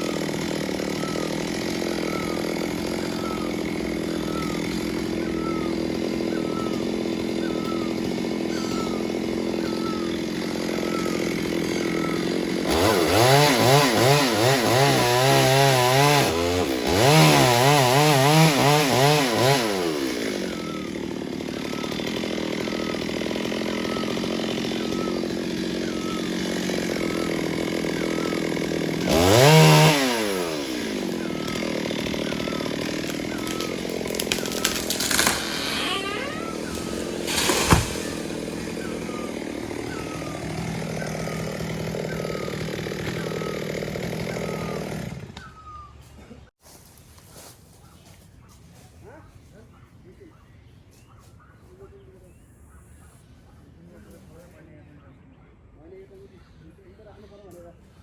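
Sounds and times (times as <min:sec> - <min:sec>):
chainsaw idling and revving: 0:00.0 - 0:45.8.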